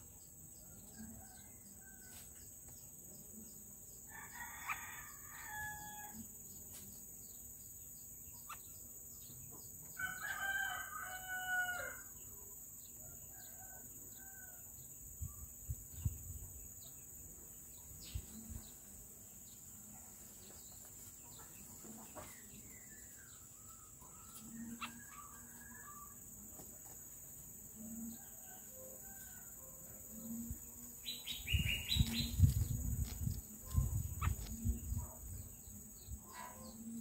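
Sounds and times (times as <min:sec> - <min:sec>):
bird chirps: 0:31.1 - 0:32.7.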